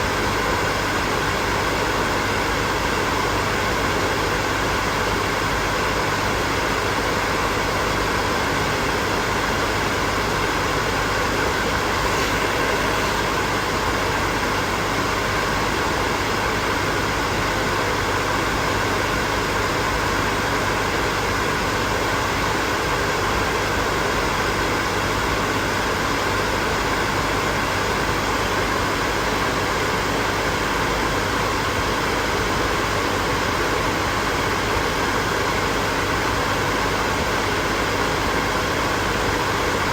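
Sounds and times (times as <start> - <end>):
hair dryer running: 9.8 - 15.8.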